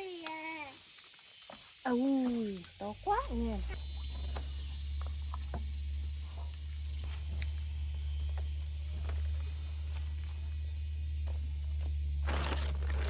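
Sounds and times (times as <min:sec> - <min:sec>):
insects chirring: 0:00.0 - 0:13.0
faint clicks and rustles: 0:00.2 - 0:13.0
low even rumble: 0:02.9 - 0:13.0.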